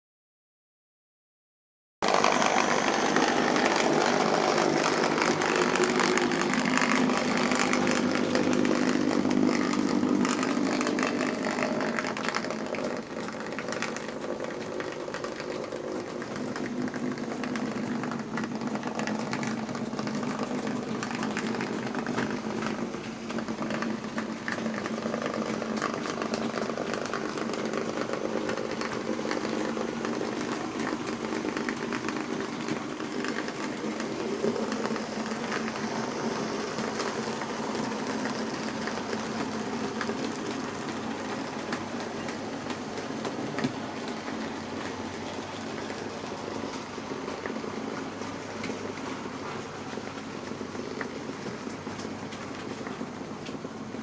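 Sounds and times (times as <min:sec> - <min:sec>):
model train motor whirring: 0:02.0 - 0:42.0
wheels rattling over rails: 0:02.0 - 0:54.0.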